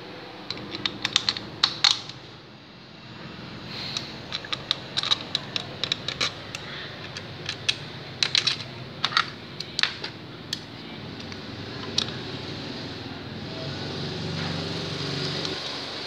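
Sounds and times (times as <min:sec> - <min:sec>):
hand tools clicking and clinking: 0:00.5 - 0:02.2, 0:03.8 - 0:12.2.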